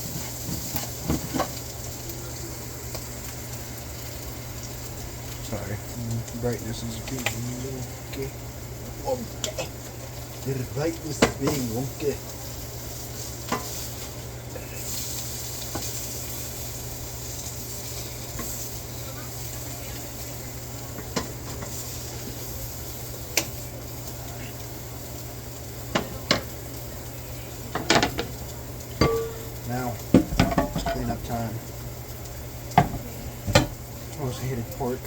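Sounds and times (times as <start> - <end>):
food sizzling in a pan: 0.0 - 35.0
utensil clicking against pan: 7.0 - 7.4, 23.3 - 24.4.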